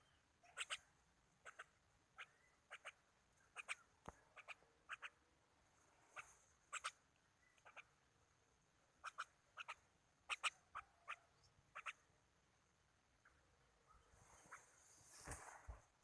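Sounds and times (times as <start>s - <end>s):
bird chirping: 0.0s - 5.2s, 6.0s - 8.0s, 9.0s - 12.2s.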